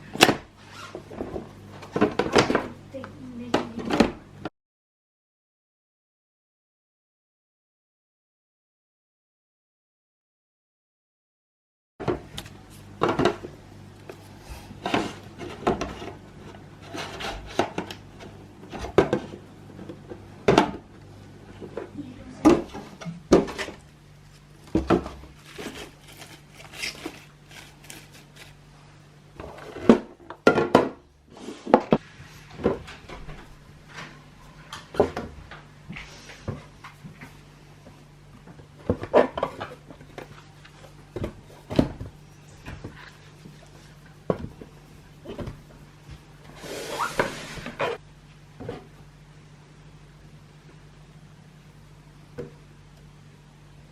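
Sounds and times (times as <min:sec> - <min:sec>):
low steady hum: 0:12.0 - 0:53.9
plastic containers knocking on shelves: 0:24.7 - 0:25.3, 0:29.8 - 0:31.0.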